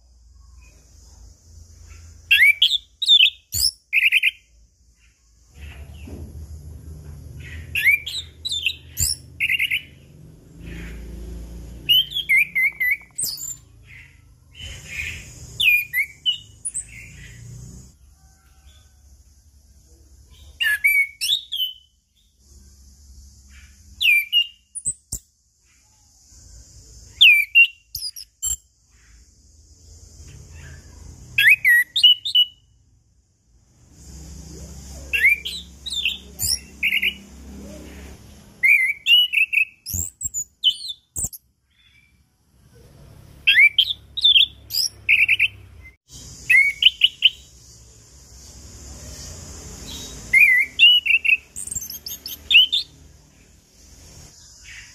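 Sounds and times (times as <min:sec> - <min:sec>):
thrush singing whistled notes: 0:01.7 - 0:04.6, 0:07.4 - 0:17.9, 0:20.3 - 0:25.8, 0:26.4 - 0:29.3, 0:30.6 - 0:32.8, 0:34.1 - 0:37.4, 0:38.6 - 0:42.2, 0:43.4 - 0:54.9.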